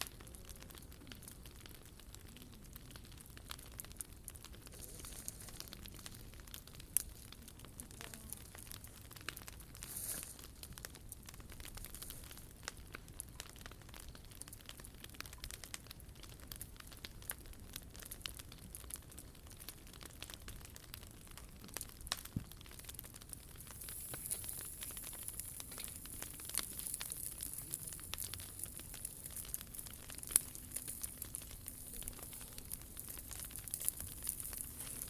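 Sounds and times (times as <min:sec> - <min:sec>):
fire hissing: 0:00.0 - 0:13.0, 0:22.1 - 0:35.0
wood fire crackling: 0:00.0 - 0:35.0.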